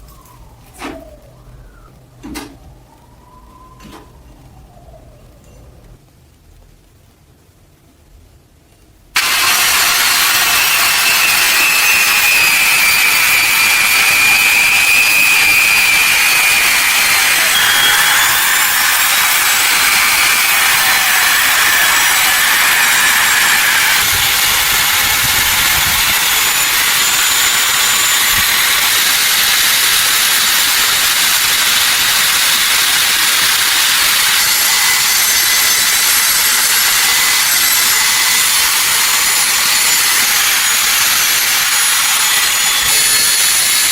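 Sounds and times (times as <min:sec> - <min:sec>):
power tool rasping on metal: 0:09.2 - 0:43.9.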